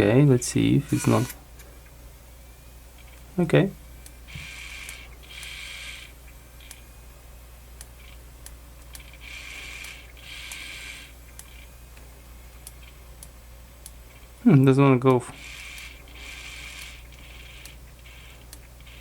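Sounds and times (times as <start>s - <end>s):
disc drive mechanism whirring: 0.6s - 1.4s, 4.0s - 6.9s, 7.8s - 14.3s, 15.1s - 19.0s
small mechanical clicks: 4.4s - 6.8s, 8.8s - 11.7s, 15.4s - 19.0s.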